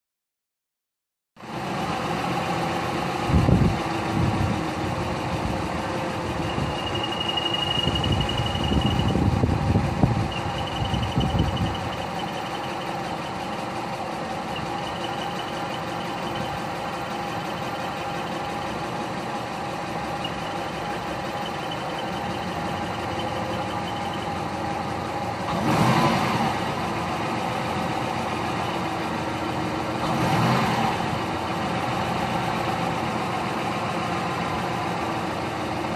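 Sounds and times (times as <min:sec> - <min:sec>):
car engine idling: 0:01.4 - 0:35.9
thin high whine: 0:06.4 - 0:13.8, 0:14.4 - 0:18.8, 0:20.1 - 0:24.4.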